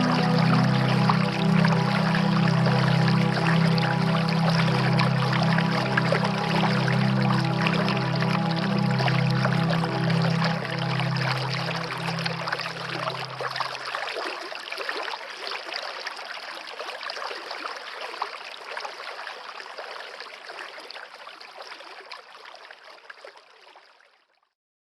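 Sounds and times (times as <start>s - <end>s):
soft music: 0.0s - 13.9s
stream water trickling: 0.0s - 24.5s.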